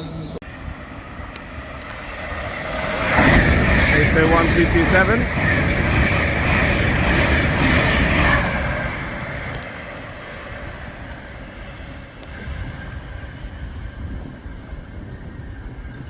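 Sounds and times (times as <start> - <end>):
train rushing past: 0.0 - 16.0.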